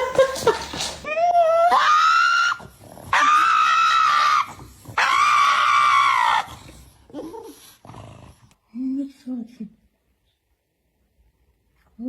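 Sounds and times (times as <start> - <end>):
faint scuffling: 0.0 - 1.1
cat yowling: 1.1 - 6.5.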